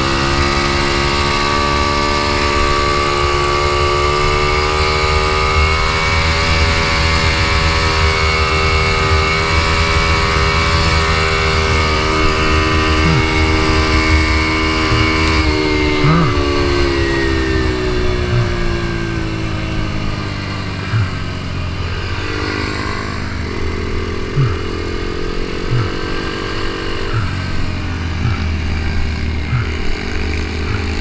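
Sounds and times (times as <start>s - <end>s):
motorcycle engine running: 0.0s - 31.0s
short low thumps: 20.9s - 21.2s, 25.7s - 26.0s.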